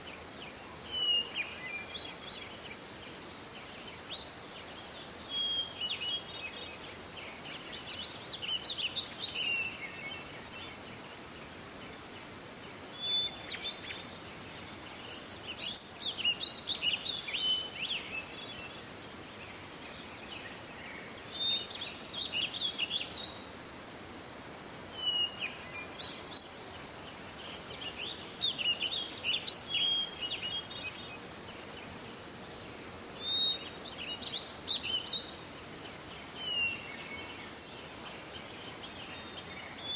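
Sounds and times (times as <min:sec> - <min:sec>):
outdoor background noise: 0:00.0 - 0:39.9
songbird warbling: 0:24.3 - 0:31.2.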